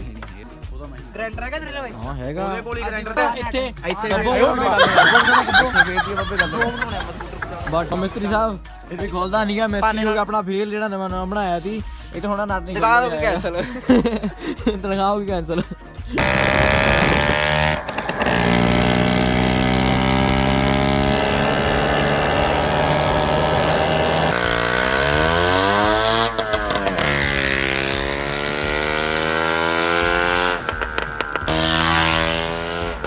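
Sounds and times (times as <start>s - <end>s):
scooter engine revving: 3.9s - 8.4s, 16.1s - 33.0s.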